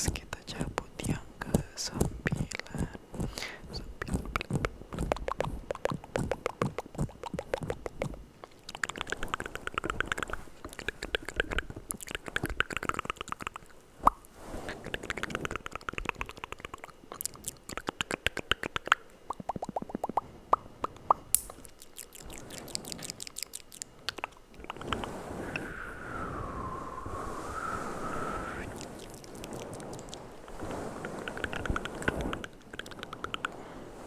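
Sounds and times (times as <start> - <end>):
wet tongue and lip clicks: 0.0 - 25.1, 28.7 - 30.3, 31.1 - 33.6
sharp mouth pop: 1.5 - 8.2, 17.7 - 21.6.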